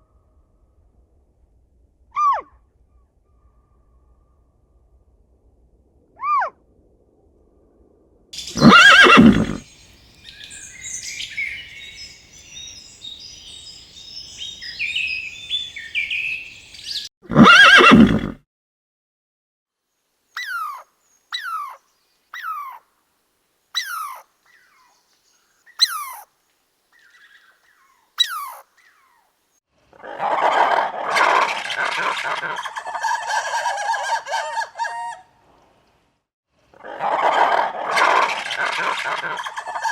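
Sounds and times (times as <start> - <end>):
hens clucking: 8.4 - 9.6
horse neighing: 8.4 - 9.7, 17.3 - 18.4
whistled bird calls: 8.4 - 17.1, 27.0 - 29.2
birds twittering: 8.4 - 18.3.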